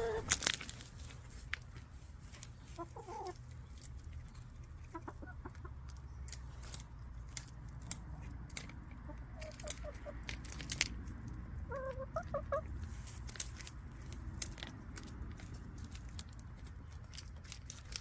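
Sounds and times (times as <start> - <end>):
hens clucking: 0.0 - 0.4, 2.5 - 3.9, 4.6 - 6.2, 8.8 - 10.5, 11.4 - 12.9
sharp clicks and crackles: 3.2 - 11.6, 13.2 - 18.0.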